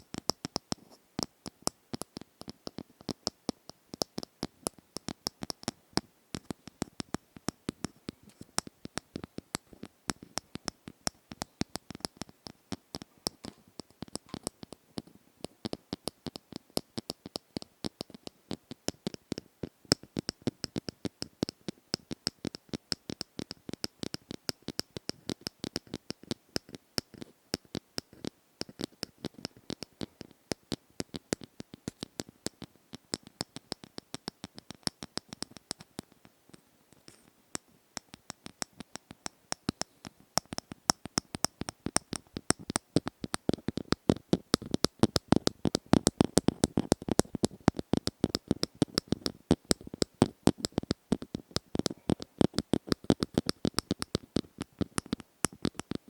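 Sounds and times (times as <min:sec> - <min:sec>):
asmr tapping: 0:08.6 - 0:16.2, 0:37.5 - 0:56.0.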